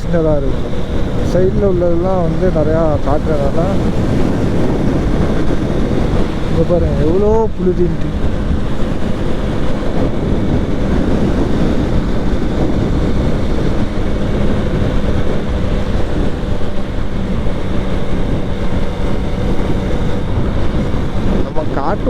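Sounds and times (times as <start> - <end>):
motorcycle engine hum: 0.0 - 22.0
wind and road noise on microphone: 0.0 - 22.0.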